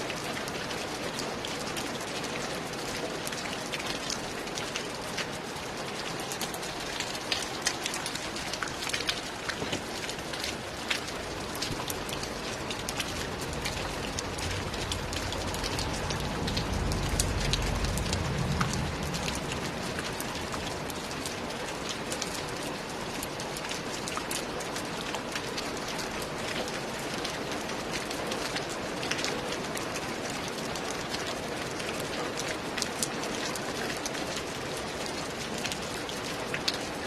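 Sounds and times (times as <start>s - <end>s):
rain on a roof: 0.0s - 37.0s
low rumble: 14.2s - 20.4s.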